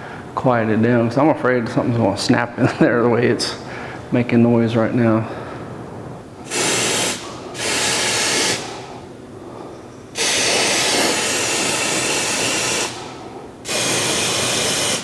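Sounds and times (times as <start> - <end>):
aerosol can spraying: 6.4 - 8.8, 10.2 - 15.0.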